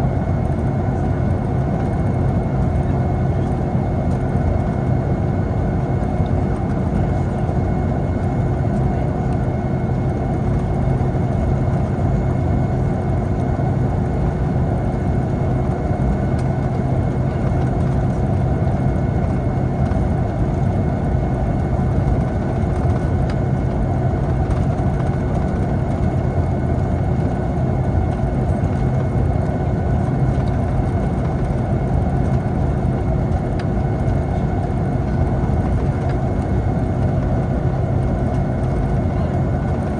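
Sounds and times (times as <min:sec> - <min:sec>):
jet engine hum and whine: 0:00.0 - 0:39.9.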